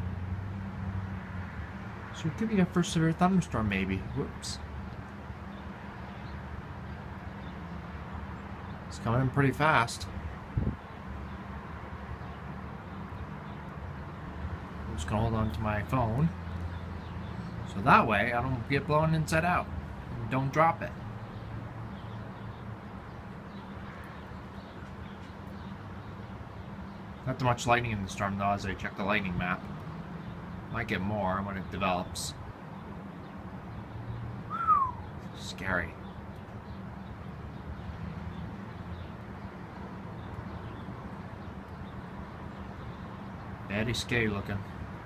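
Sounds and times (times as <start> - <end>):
wind noise on microphone: 10.3 - 11.0
faint bird chirps: 34.4 - 39.2
faint high chirps: 34.5 - 35.2.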